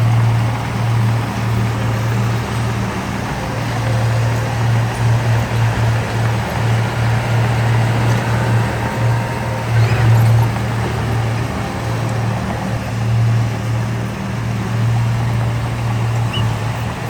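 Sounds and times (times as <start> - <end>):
heavy diesel engine humming: 0.0 - 17.0.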